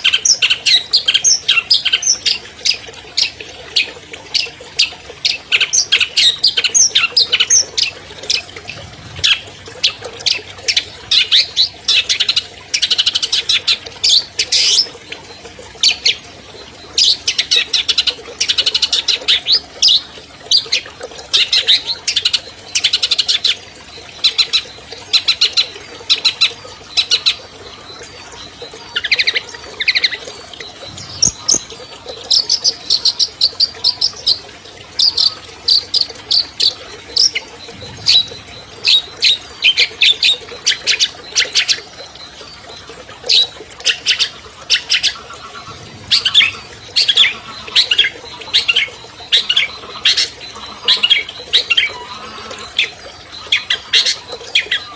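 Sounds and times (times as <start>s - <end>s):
shrike singing chattering song: 24.2s - 34.4s, 35.1s - 54.9s.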